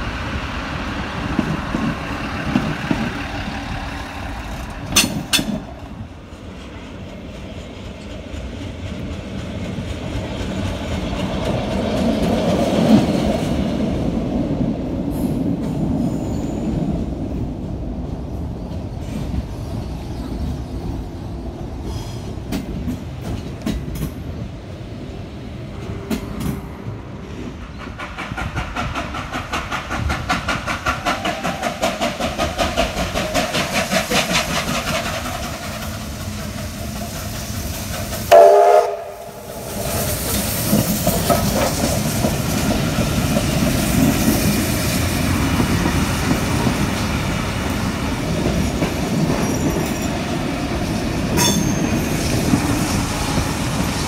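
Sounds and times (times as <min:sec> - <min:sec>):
train wheels clattering on rails: 0:00.0 - 0:24.6, 0:25.7 - 0:54.0
train horn toot: 0:38.3 - 0:39.6.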